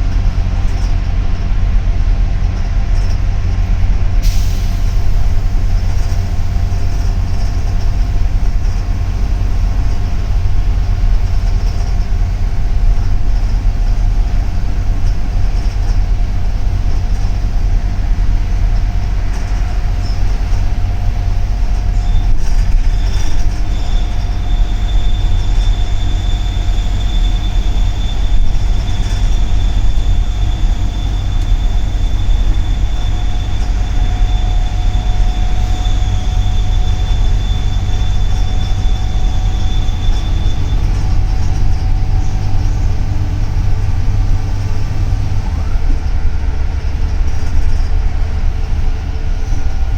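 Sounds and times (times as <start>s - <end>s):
bus engine and road rumble: 0.0s - 49.9s
thin steady whine: 19.6s - 49.9s.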